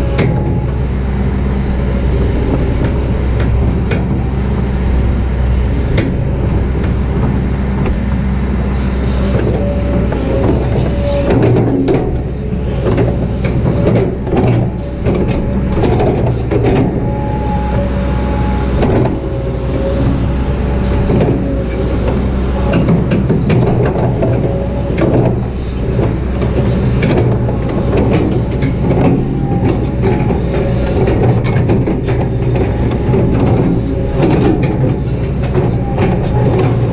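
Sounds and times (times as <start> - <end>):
excavator diesel engine running: 0.0 - 36.9
hydraulic whine: 0.0 - 36.9.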